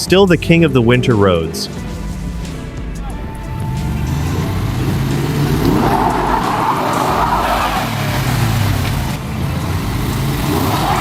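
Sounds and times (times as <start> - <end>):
car engine revving: 0.0 - 11.0
tyres churning through snow: 3.6 - 11.0.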